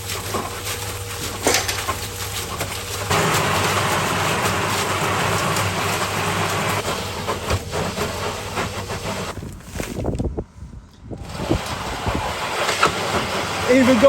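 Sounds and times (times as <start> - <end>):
cement mix rattling in metal drum: 0.0 - 10.3, 11.2 - 14.0.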